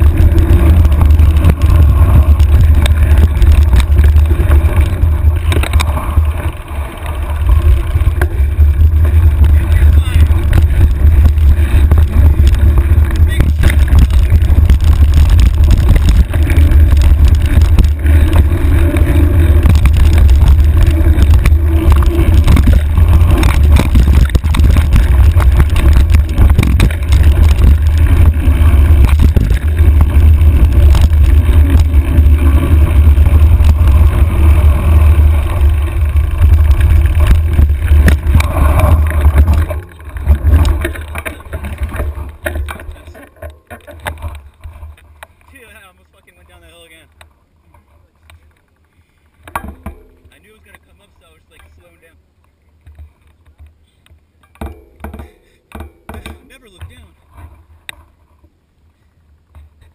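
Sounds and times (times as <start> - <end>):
wind buffeting microphone: 0.0 - 43.1
bike knocks and rattles: 0.0 - 45.9, 46.5 - 51.8, 52.8 - 58.6.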